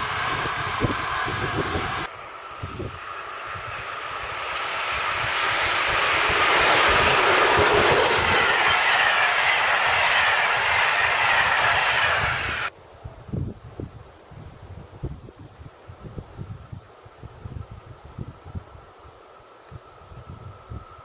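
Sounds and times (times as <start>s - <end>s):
train wheels rushing on rail: 0.0s - 12.7s.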